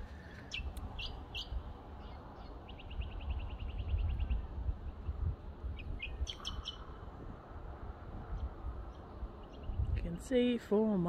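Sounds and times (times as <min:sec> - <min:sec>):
wind rumble on microphone: 0:00.0 - 0:11.0
small birds chirping: 0:00.1 - 0:07.1, 0:08.2 - 0:10.3
bird trill: 0:00.5 - 0:04.4, 0:05.8 - 0:07.0.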